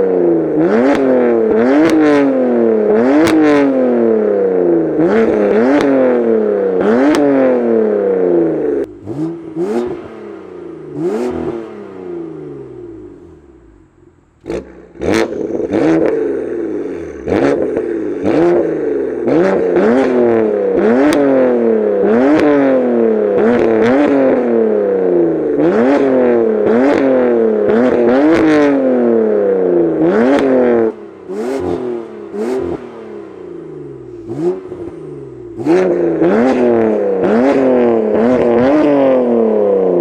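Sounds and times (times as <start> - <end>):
car engine revving: 0.0 - 40.0
exhaust cracks: 33.8 - 40.0.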